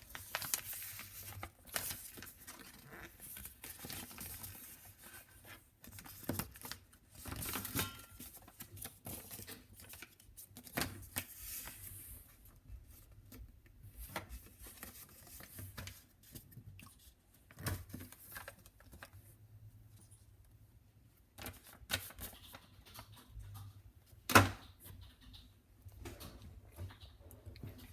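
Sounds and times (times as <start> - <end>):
paper rustling and crinkling: 0.0 - 19.4, 21.3 - 23.4.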